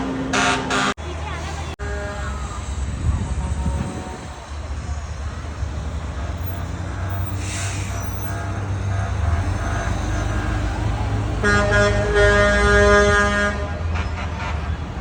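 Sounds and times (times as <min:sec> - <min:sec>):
truck engines rumbling: 0:00.0 - 0:15.0.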